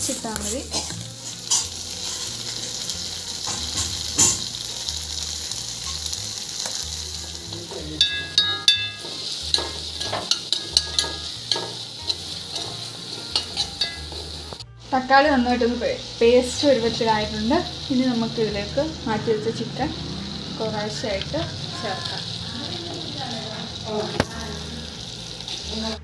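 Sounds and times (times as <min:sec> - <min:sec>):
steel spoon scraping a pan: 0:00.0 - 0:04.6, 0:08.0 - 0:14.6
masala sizzling in a pan: 0:00.0 - 0:26.0
metallic ring: 0:08.0 - 0:09.1.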